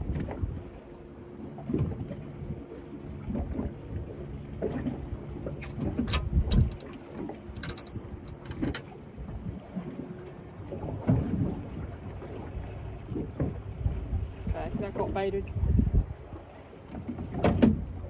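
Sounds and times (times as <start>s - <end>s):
wind and water rumble: 0.0s - 18.0s
sharp metallic clicks: 6.1s - 6.9s, 7.6s - 8.8s.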